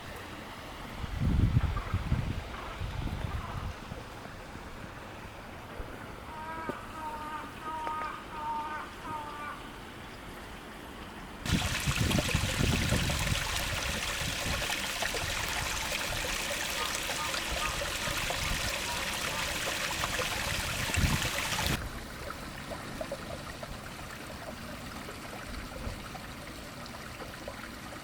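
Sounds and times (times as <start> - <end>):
stream water rushing: 11.4 - 25.3.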